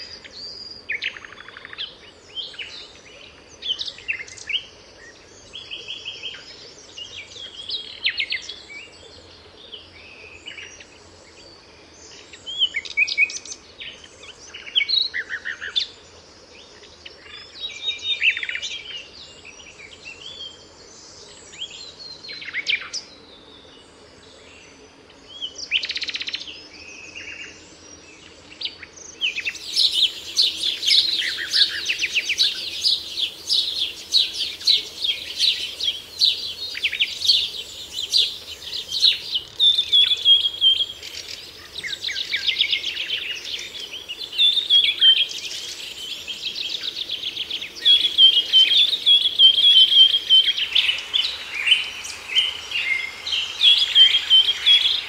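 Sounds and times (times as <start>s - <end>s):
birds trilling songs: 29.0s - 55.0s
birds chirping: 29.2s - 55.0s.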